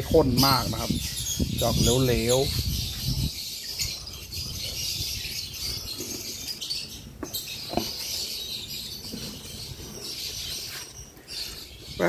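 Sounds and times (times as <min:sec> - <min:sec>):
small birds chirping and chattering: 0:00.0 - 0:12.0.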